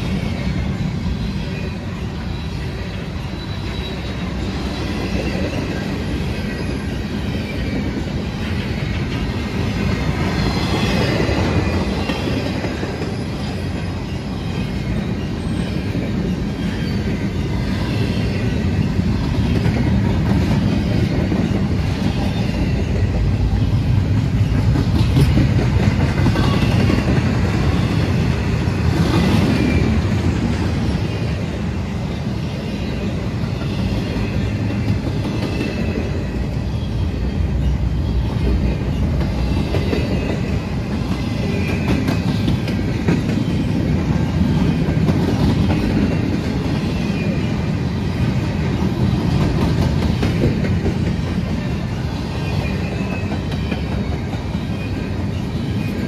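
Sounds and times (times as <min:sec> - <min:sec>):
train rail rumble: 0:00.0 - 0:56.0
faint high wheel squeal: 0:01.4 - 0:08.0.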